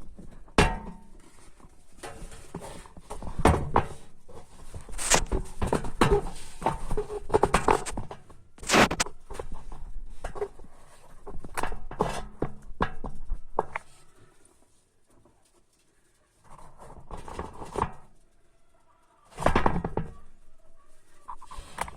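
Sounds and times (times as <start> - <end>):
handling knocks clicks and scrapes: 0.0 - 14.1, 16.4 - 18.2.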